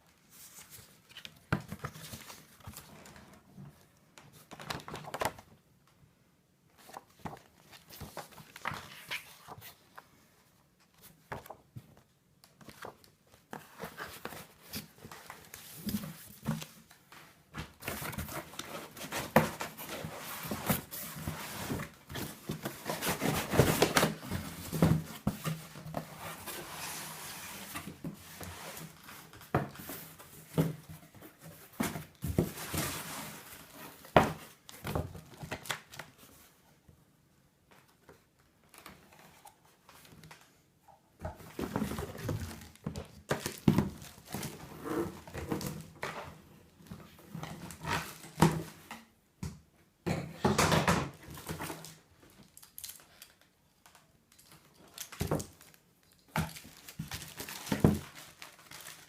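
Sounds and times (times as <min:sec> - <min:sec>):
packaging crinkling and rustling: 0:51.3 - 0:59.0.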